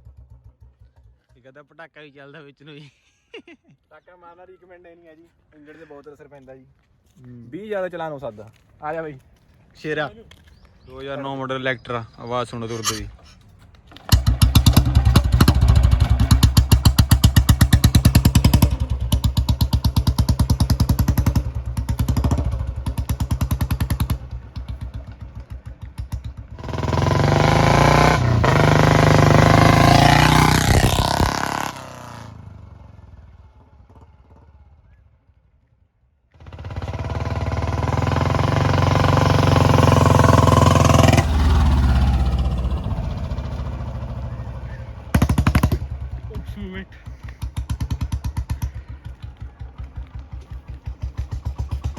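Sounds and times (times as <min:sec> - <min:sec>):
motorcycle engine thumping exhaust: 0:00.0 - 0:01.5, 0:13.9 - 0:35.0, 0:36.3 - 0:51.9.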